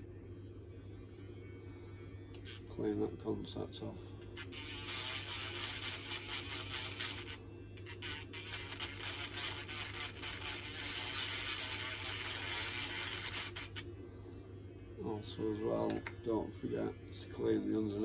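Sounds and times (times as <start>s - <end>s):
grinding pen scraping metal contact: 4.2s - 13.8s.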